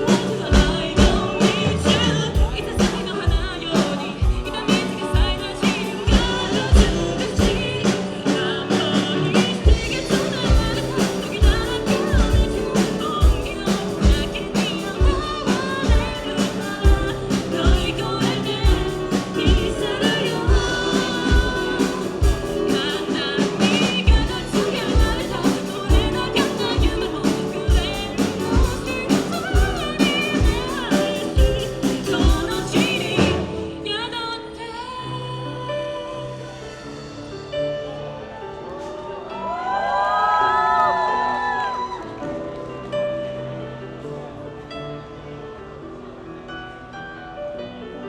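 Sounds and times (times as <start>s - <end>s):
steady drum beat: 0.0s - 33.8s
person singing: 0.0s - 37.0s
live band playing: 0.0s - 45.2s.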